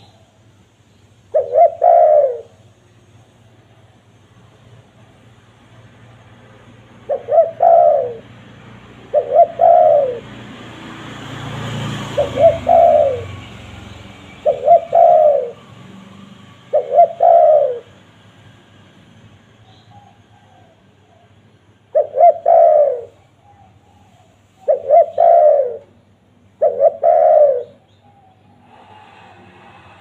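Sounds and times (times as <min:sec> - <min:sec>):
dove cooing: 0:01.3 - 0:02.6, 0:07.0 - 0:08.4, 0:09.0 - 0:10.5, 0:11.9 - 0:13.7, 0:14.4 - 0:15.7, 0:16.7 - 0:17.9, 0:19.9 - 0:26.0, 0:26.6 - 0:29.2.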